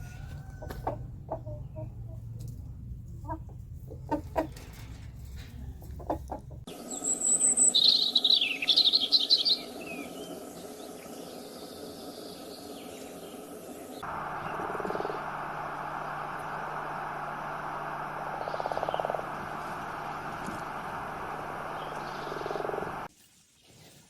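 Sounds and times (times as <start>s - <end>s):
steady noisy hum: 0.0s - 23.1s
bird chirping loudly: 6.8s - 10.3s.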